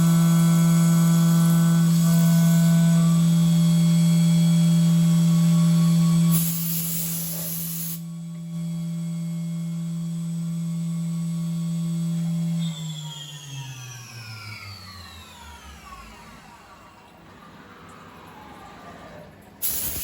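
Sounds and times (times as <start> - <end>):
burst of hiss: 6.3 - 8.0, 19.6 - 20.0
mill spindle whining: 11.8 - 20.0.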